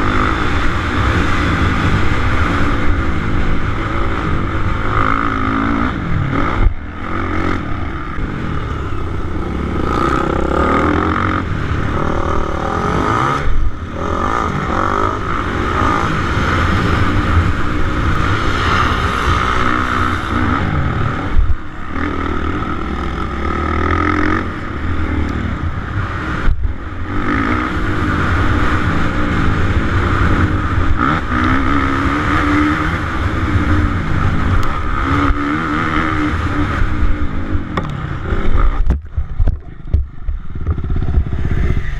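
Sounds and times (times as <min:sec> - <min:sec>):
motocross bike engine revving: 0:00.0 - 0:39.0.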